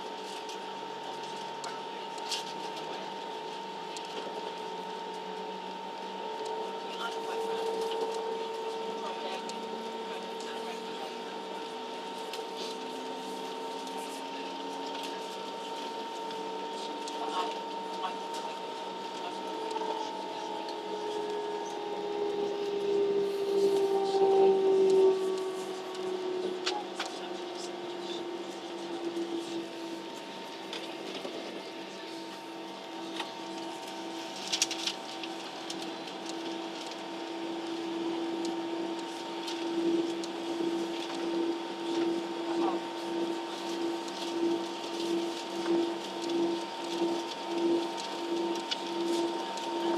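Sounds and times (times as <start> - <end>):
airplane cabin hum and whine: 0.0 - 49.9.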